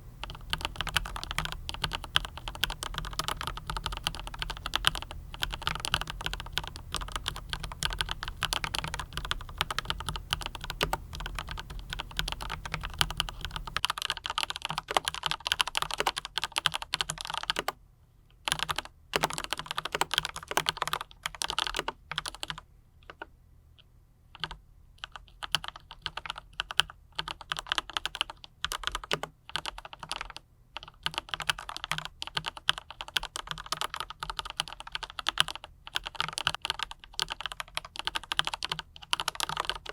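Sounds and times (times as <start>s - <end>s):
mechanical keyboard typing: 0.2s - 17.8s, 18.4s - 23.3s, 24.4s - 39.9s.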